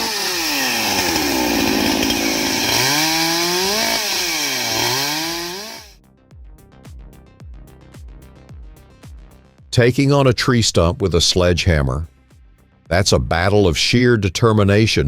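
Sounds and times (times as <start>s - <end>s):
chainsaw cutting logs: 0.0s - 6.0s.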